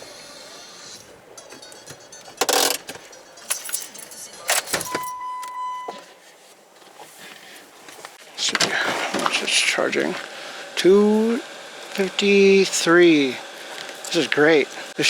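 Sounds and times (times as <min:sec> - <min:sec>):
electronic beep: 0:01.4 - 0:06.1.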